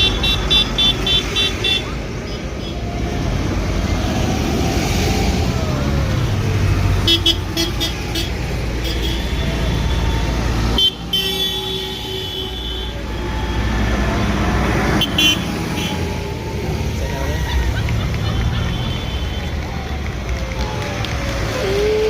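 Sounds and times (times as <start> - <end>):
vehicle engines rumbling: 0.0 - 22.0
vehicle horn: 10.8 - 13.0, 14.9 - 16.0.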